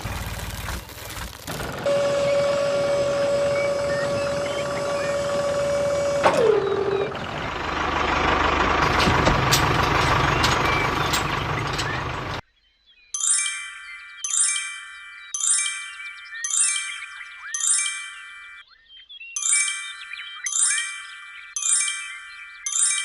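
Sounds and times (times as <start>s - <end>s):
small motor whining: 1.7s - 7.3s
bright chimes: 13.2s - 18.6s, 19.4s - 23.0s.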